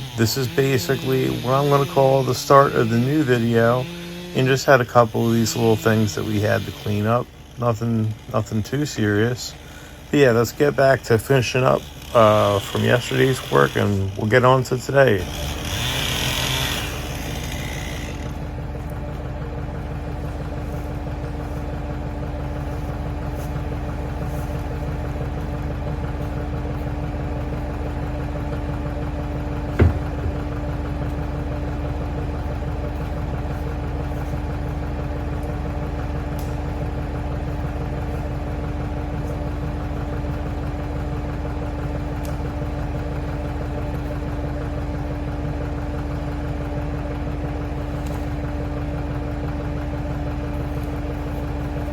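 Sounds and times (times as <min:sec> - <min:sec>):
loader engine running: 0:00.0 - 0:51.9
sharp knock: 0:29.8 - 0:30.5.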